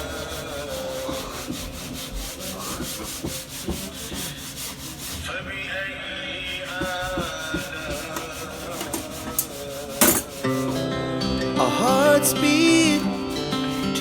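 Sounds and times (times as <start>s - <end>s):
hand sanding strokes: 0.0s - 11.2s, 11.8s - 14.0s.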